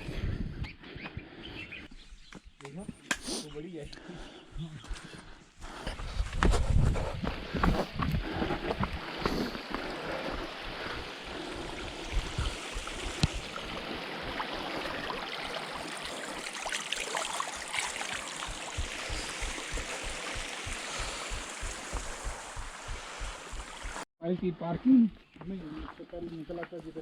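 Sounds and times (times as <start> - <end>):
stream water flowing: 8.8 - 24.1
stones and twigs clicking underfoot: 12.2 - 13.8
footsteps thudding: 18.4 - 24.1.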